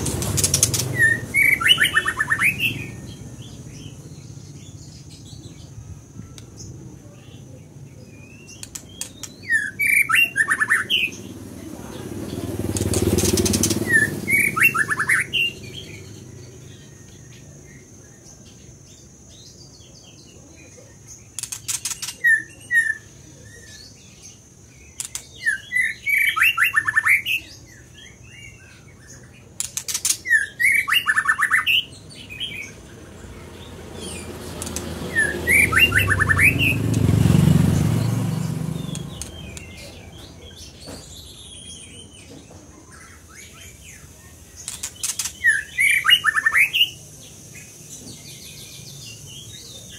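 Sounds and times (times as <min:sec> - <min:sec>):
sharp rattling clicks: 0:00.0 - 0:01.1, 0:08.5 - 0:09.4, 0:12.7 - 0:14.0, 0:21.3 - 0:22.2, 0:25.0 - 0:25.3, 0:29.6 - 0:30.2, 0:34.1 - 0:35.2, 0:38.8 - 0:39.9, 0:44.6 - 0:45.4
bird singing whistled phrases: 0:00.5 - 0:03.0, 0:09.3 - 0:11.2, 0:13.8 - 0:15.9, 0:25.4 - 0:27.6, 0:30.2 - 0:32.7, 0:34.2 - 0:36.8, 0:45.3 - 0:47.1.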